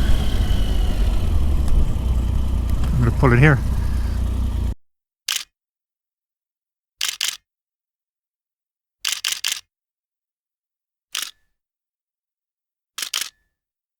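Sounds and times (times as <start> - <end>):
motorcycle engine running: 0.0 - 4.8.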